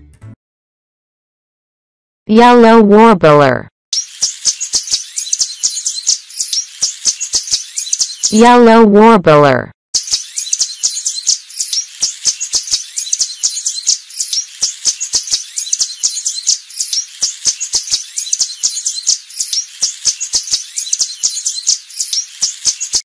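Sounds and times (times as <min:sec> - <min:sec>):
songbird chirping: 0:04.0 - 0:08.8, 0:10.0 - 0:23.0.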